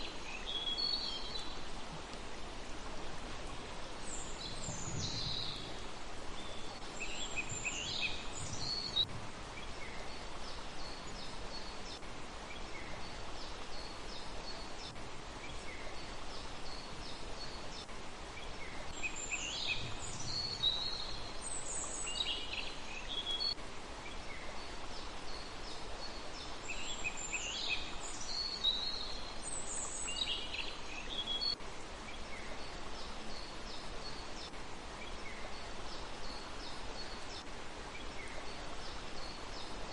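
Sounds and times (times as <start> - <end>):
steady background hiss: 0.0 - 39.9
songbird calling: 26.7 - 38.6.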